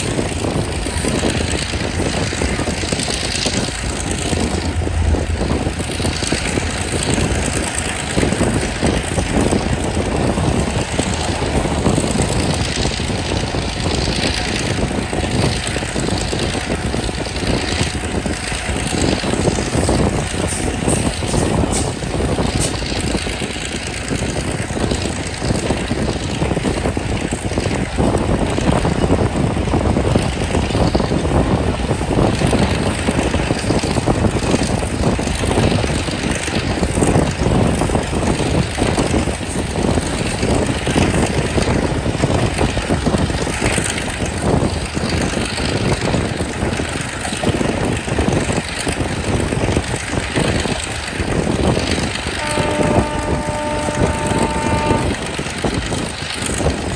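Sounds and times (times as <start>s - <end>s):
train rumbling: 0.0s - 56.9s
train wheels clattering on rails: 0.0s - 56.9s.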